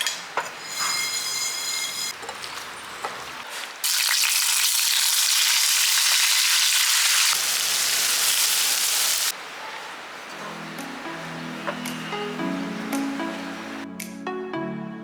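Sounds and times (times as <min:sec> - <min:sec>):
food sizzling in hot oil: 0:03.8 - 0:09.3.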